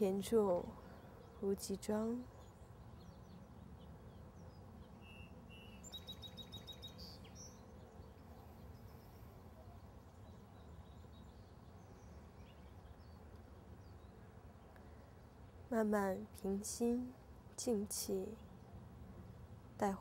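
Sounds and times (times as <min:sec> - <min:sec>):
bird trilling high chirps: 0:05.0 - 0:07.6.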